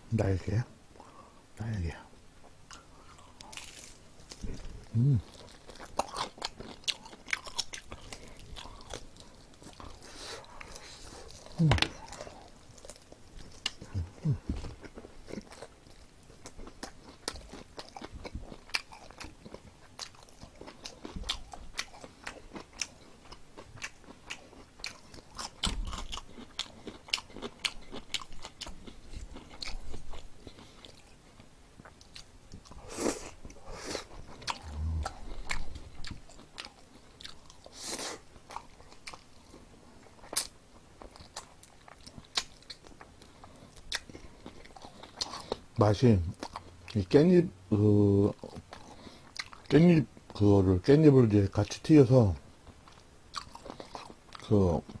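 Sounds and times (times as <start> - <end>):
crunching fried chicken: 2.7 - 33.3.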